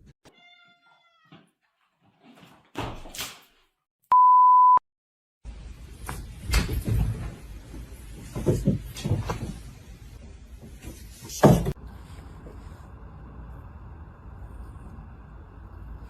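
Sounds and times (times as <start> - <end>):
knocks and thumps: 8.2 - 9.7.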